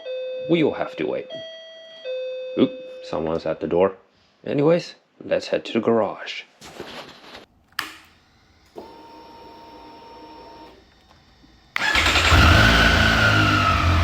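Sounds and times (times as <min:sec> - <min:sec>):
fuel pump whine: 0:08.2 - 0:14.0
motorcycle engine running: 0:11.8 - 0:14.0.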